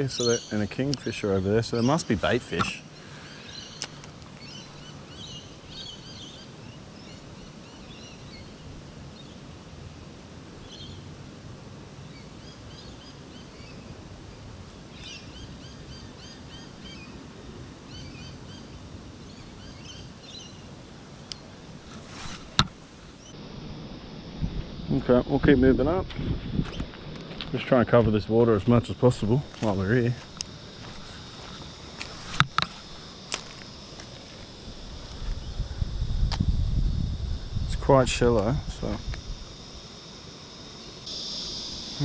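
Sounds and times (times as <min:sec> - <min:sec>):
small birds chirping: 0:00.0 - 0:08.6
outdoor background hum: 0:00.0 - 0:42.0.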